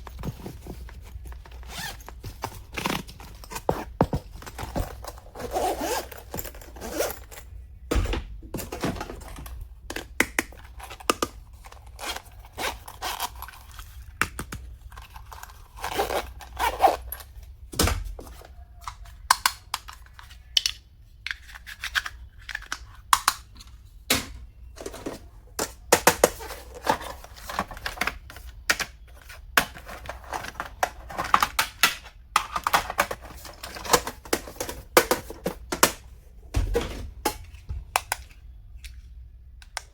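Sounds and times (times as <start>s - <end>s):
plastic items clicking: 24.8s - 36.0s.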